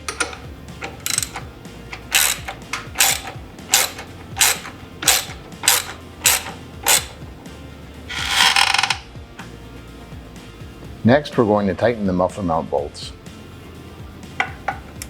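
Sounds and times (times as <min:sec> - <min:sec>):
socket ratchet clicking: 0:00.0 - 0:07.3, 0:08.1 - 0:09.1.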